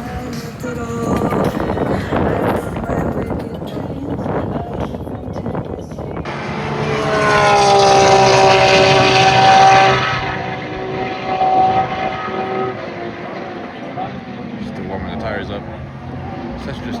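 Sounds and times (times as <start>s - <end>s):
engine droning past: 6.2s - 17.0s.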